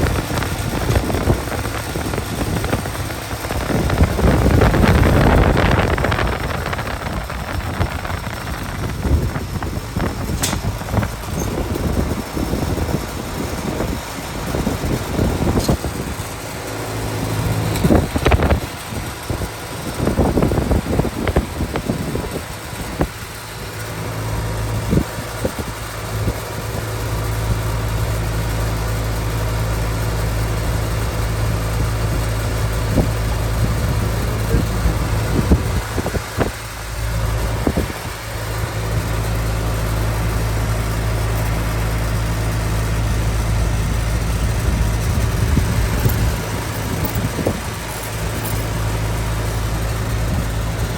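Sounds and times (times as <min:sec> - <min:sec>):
air conditioner unit humming: 0:31.5 - 0:50.9.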